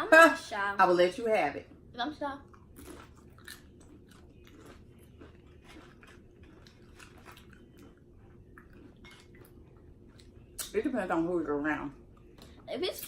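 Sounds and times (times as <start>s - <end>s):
chips being chewed: 2.5s - 10.7s.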